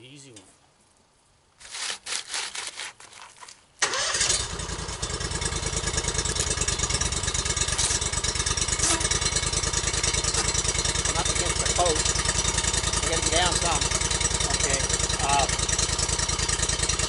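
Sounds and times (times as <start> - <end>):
engine starting and idling: 3.8 - 17.0.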